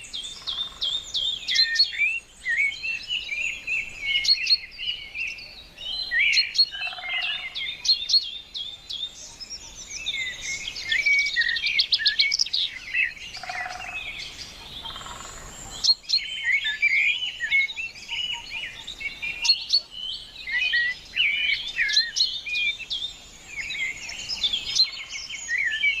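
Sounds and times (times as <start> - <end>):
small birds chirping and singing: 0.0 - 26.0
bird trilling: 6.1 - 7.6, 13.0 - 14.2, 14.8 - 19.9.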